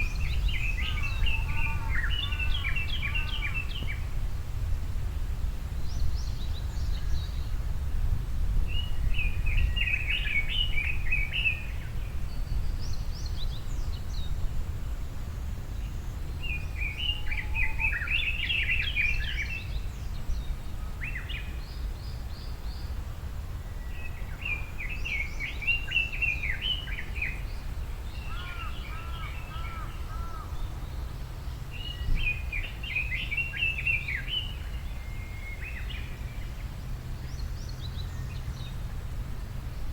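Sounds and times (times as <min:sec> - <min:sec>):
low outdoor rumble: 0:21.6 - 0:39.9
songbird warbling: 0:28.2 - 0:30.7.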